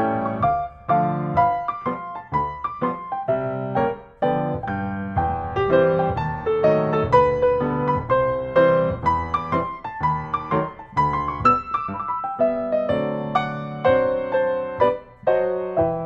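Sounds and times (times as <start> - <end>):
gentle piano notes: 0.0 - 16.0.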